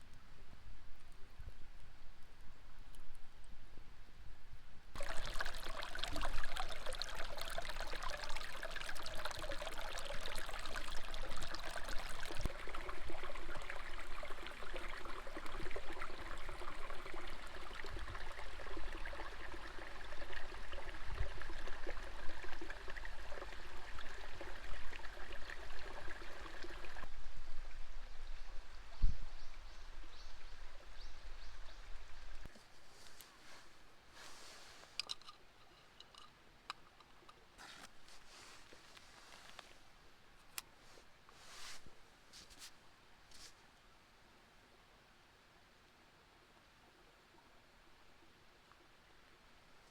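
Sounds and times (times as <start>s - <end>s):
stream water flowing over rocks: 5.0s - 28.5s.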